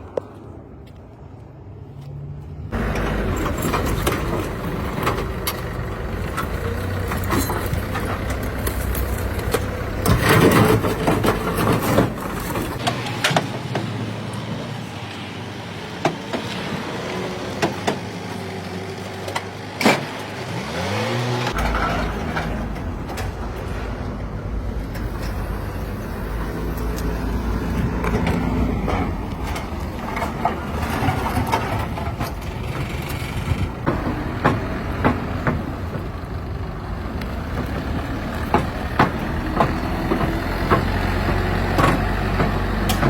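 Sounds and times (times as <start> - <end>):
vehicle engine running: 2.7 - 12.8
knocks and clanks: 2.7 - 14.0, 21.5 - 43.0.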